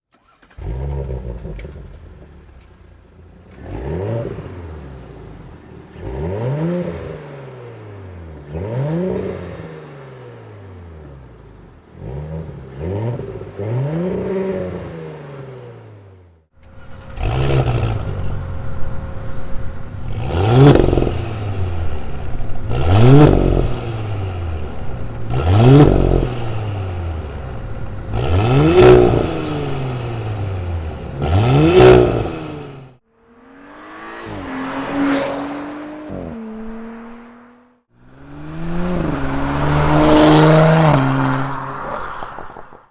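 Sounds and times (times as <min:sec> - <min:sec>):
car engine revving: 0:00.1 - 0:42.9.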